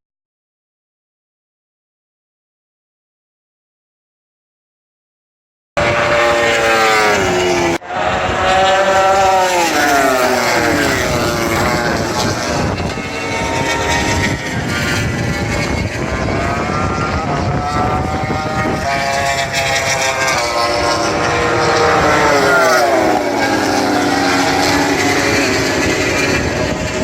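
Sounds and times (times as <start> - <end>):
race bike engines screaming past: 5.8 - 27.0.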